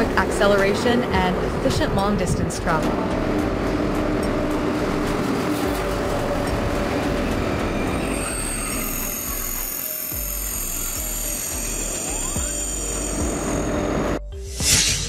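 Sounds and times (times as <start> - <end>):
steady hum: 0.0 - 14.3
high-pitched steady tones: 3.0 - 14.4.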